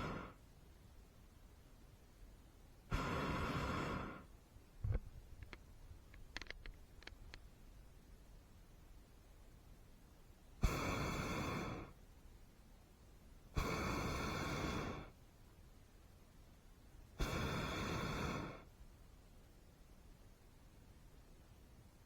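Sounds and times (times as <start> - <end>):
propane burner roaring: 2.9 - 4.2.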